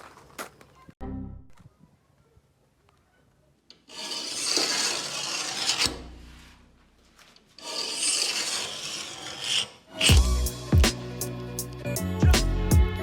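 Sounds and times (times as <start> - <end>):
abrasive rubbing strokes: 3.8 - 10.6.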